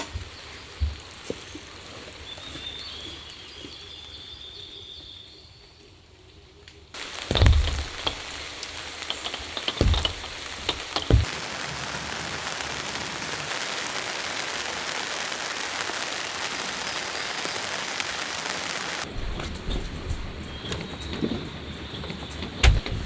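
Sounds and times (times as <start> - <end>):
steady rain: 0.0 - 3.5, 6.9 - 23.0
loud dull thuds: 7.0 - 11.5.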